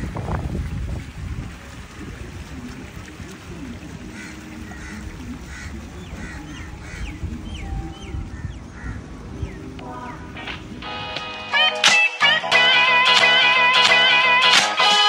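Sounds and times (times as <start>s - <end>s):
wind rumble on microphone: 0.0s - 10.9s
birds chirping: 3.4s - 11.0s.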